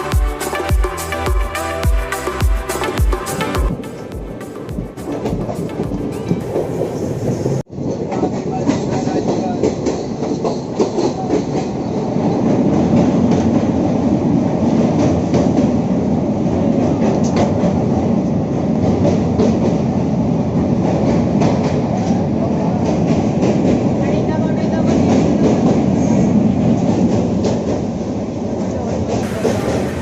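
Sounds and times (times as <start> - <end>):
train rumble: 0.0 - 30.0
wheels clacking over rail joints: 28.8 - 30.0.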